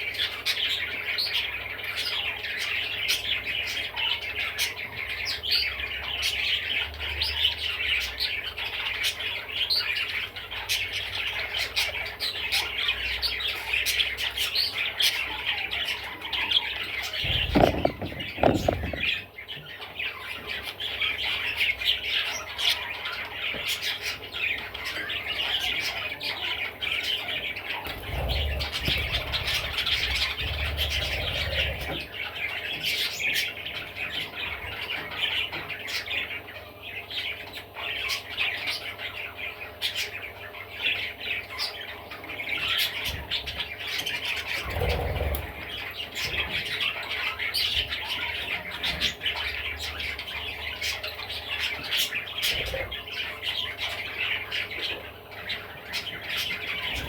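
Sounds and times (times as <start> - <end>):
budgerigar chattering and warbling: 14.9 - 19.3.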